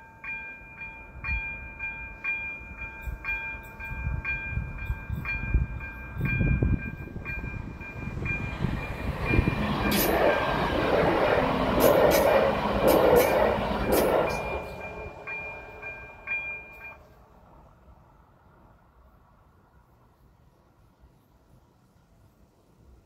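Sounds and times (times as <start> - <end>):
level crossing warning bell: 0.0 - 10.9, 12.5 - 17.3
passenger train rushing past: 0.6 - 19.4
train wheel clacks: 4.8 - 17.0.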